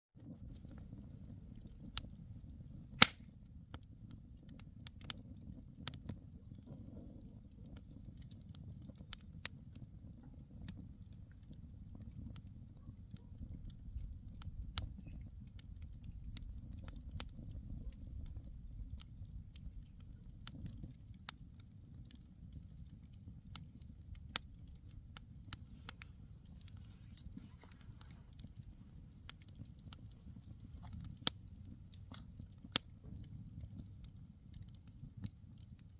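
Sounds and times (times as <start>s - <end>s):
fire low rumble: 0.2s - 35.9s
wood popping and crackling: 0.3s - 35.9s.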